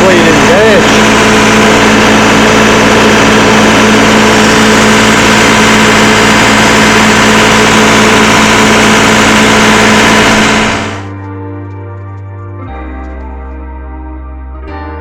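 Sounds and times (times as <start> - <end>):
diesel engine running loud: 0.0 - 11.2.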